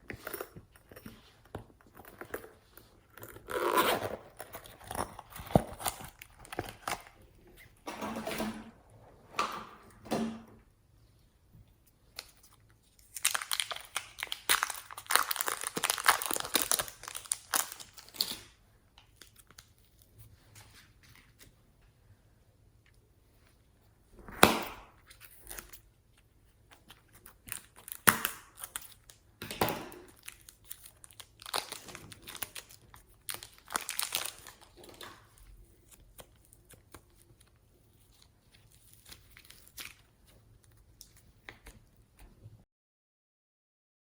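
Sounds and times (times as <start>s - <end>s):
plastic packaging crinkling: 3.0s - 7.2s, 12.1s - 20.1s, 26.6s - 29.2s, 29.9s - 41.7s.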